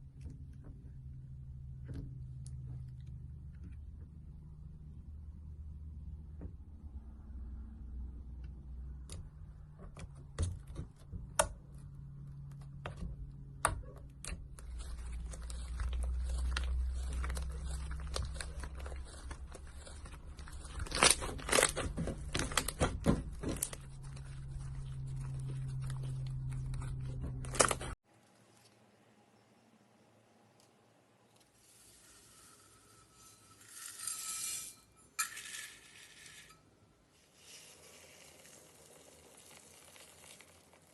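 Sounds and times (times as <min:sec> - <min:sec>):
slime popping and crackling: 0:14.8 - 0:26.5.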